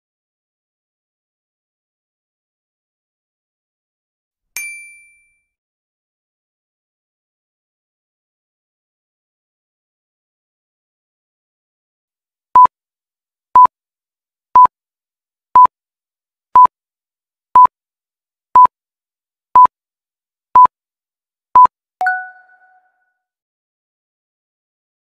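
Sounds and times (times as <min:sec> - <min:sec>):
two-tone ringing chime: 0:22.0 - 0:22.9.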